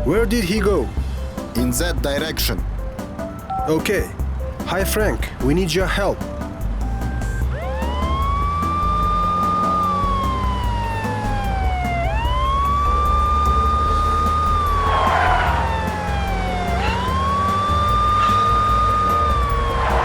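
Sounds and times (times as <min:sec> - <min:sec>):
low steady rumble: 0:00.0 - 0:20.0
police siren wailing: 0:07.5 - 0:20.0.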